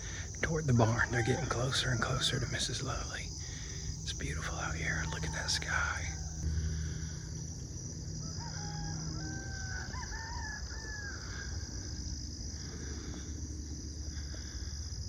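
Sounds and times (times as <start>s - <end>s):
high insect drone: 0.0s - 15.0s
rooster crowing: 0.7s - 2.2s, 4.6s - 7.1s, 7.8s - 12.3s.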